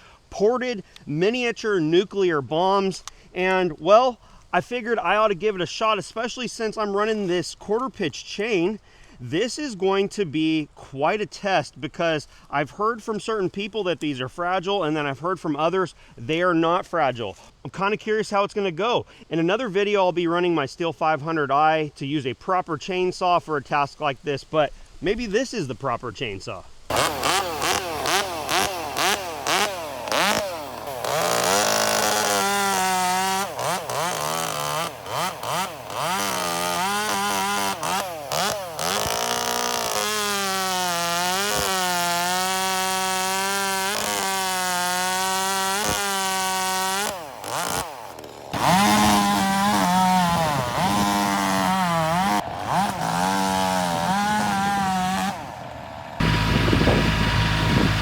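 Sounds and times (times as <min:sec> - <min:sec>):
chainsaw revving and cutting: 0:26.9 - 0:58.0.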